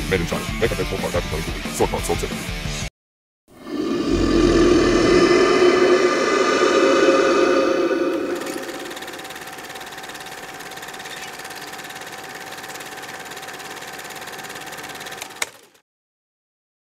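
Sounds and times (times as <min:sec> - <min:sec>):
small machine clattering: 0:08.7 - 0:15.8.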